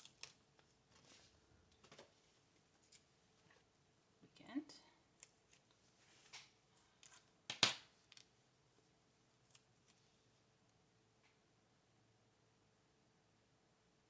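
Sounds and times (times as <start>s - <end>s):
paper rustling and clicks: 0.0s - 2.2s.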